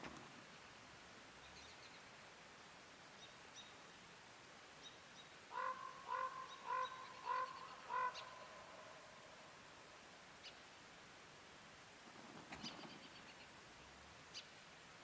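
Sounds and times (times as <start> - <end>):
small birds chirping: 1.4 - 2.2, 12.2 - 15.0
turkey yelps: 5.6 - 8.4.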